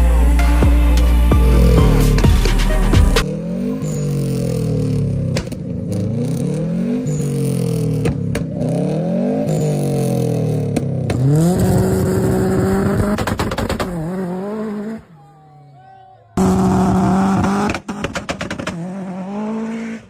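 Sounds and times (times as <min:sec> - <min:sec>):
car engine revving: 0:00.0 - 0:15.2, 0:16.4 - 0:20.0.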